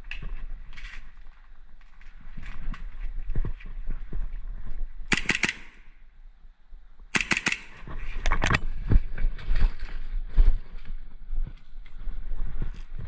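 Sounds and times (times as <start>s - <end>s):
airsoft gun bursts: 5.1s - 5.9s, 7.1s - 7.8s.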